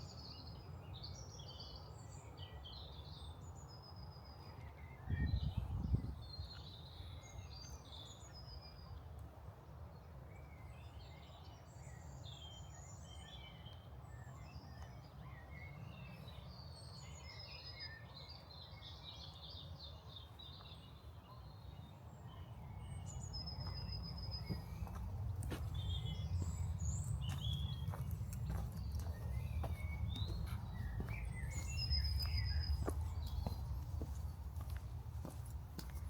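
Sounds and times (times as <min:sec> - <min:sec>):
small birds chirping: 0:10.5 - 0:36.0
low outdoor rumble: 0:24.1 - 0:36.0.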